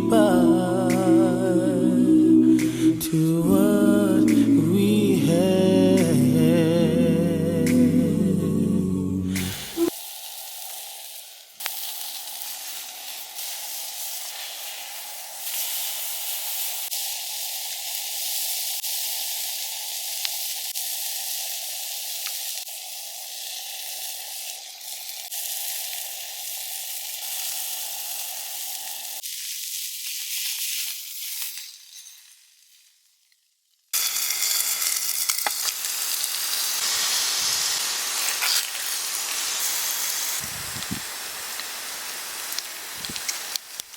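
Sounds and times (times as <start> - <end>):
food sizzling in a pan: 9.4 - 43.9.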